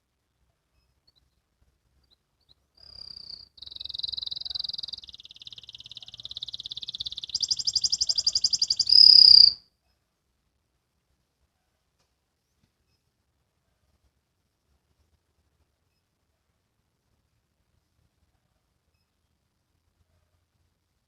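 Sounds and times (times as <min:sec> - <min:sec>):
canary singing trills: 0:02.0 - 0:09.6.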